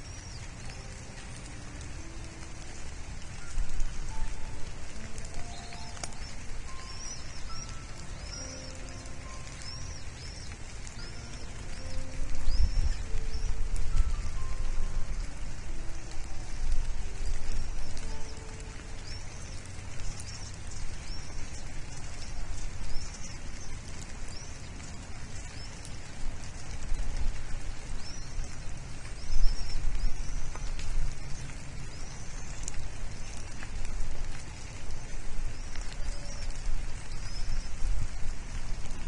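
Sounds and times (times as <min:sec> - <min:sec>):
steady hiss and low rumble: 0:00.0 - 0:39.0
high bird chirps: 0:05.2 - 0:14.7.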